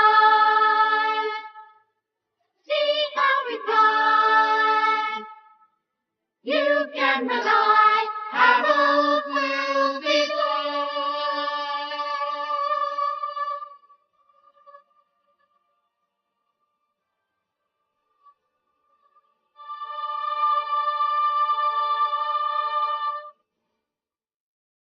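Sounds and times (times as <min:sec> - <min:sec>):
person singing: 0:06.5 - 0:13.8.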